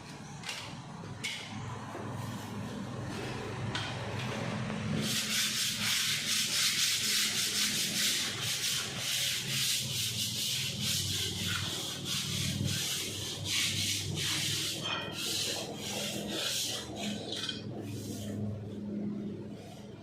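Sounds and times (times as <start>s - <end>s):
hand sanding rasping strokes: 5.0s - 20.0s.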